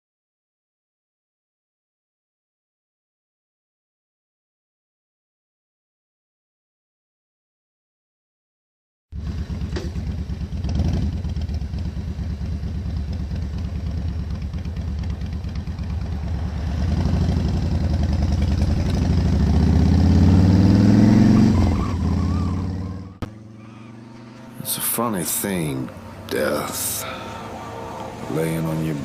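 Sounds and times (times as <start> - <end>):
motorcycle engine accelerating: 9.1 - 29.0.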